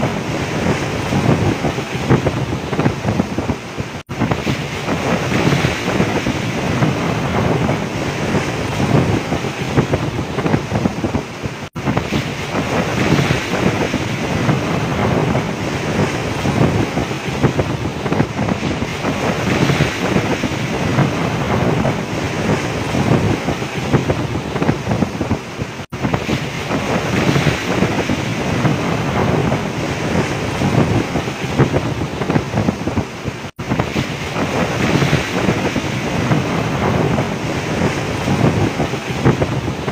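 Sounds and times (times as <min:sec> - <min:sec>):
waves breaking against boat: 0:00.0 - 0:39.9
wind buffeting microphone: 0:00.0 - 0:39.9.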